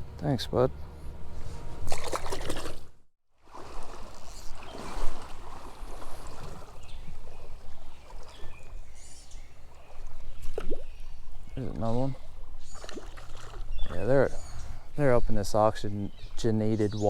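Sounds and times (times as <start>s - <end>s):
water splashing: 1.9s - 9.0s, 9.6s - 11.0s, 11.6s - 14.4s
creek water running: 3.4s - 16.9s.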